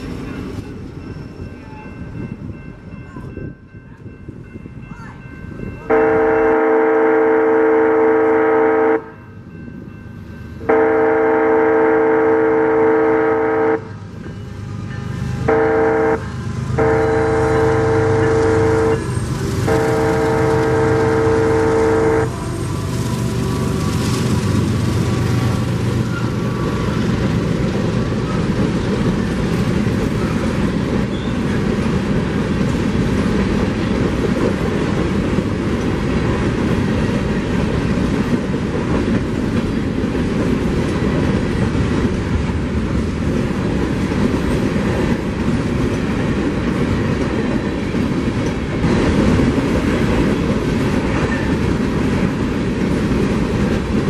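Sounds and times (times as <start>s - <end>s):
hopper cars rumbling on rails: 0.0s - 54.0s
train horn: 5.9s - 9.2s, 10.6s - 24.2s.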